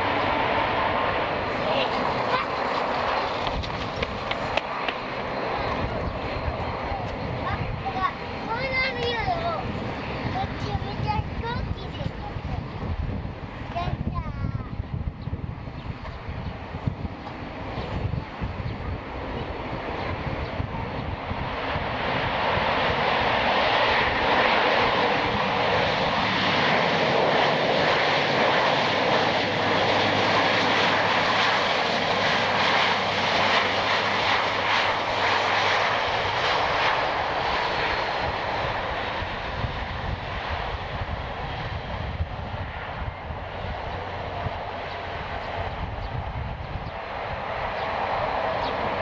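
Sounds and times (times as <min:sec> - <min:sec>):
jet roar passing by: 0:00.0 - 0:49.0.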